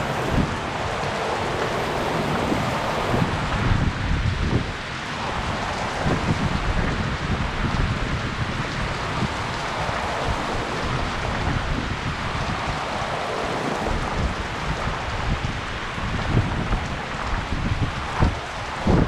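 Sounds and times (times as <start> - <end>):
heavy rain pattering: 0.0 - 19.0
raindrops thumping close by: 0.0 - 19.0.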